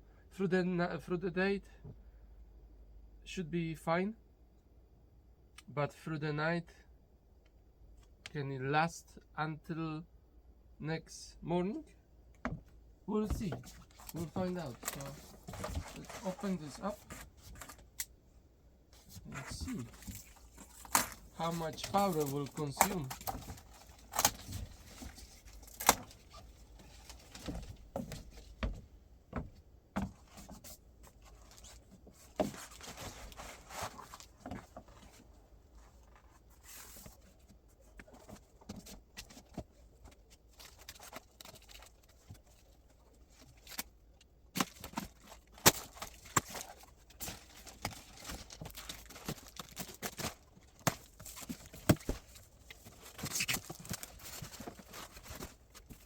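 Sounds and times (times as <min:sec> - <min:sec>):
packaging being opened and handled: 0:13.3 - 0:18.1, 0:19.2 - 0:27.7, 0:40.6 - 0:42.6, 0:44.6 - 0:56.0.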